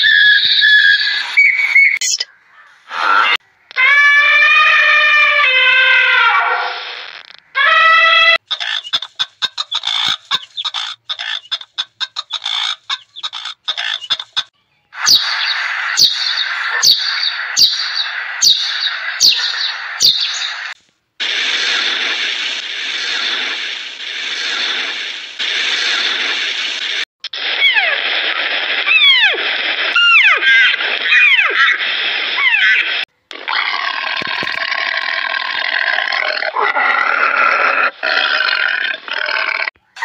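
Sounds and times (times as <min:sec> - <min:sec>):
bird clicking and chirping: 0:08.4 - 0:20.6
steady hiss: 0:20.6 - 0:27.0.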